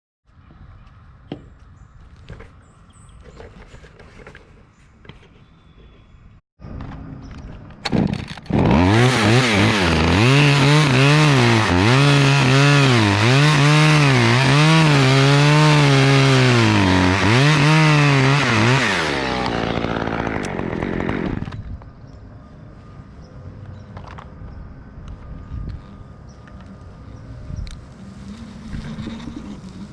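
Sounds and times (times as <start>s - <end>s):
chainsaw sawing wood: 8.3s - 21.6s.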